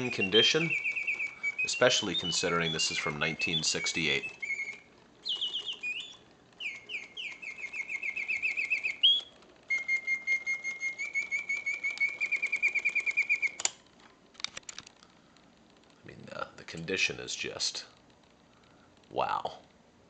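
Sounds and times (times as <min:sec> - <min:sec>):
mechanical bird whistle trilling: 0:00.0 - 0:13.7
faint mechanism clicks: 0:00.0 - 0:19.8
sharp mechanism click: 0:13.4 - 0:13.8.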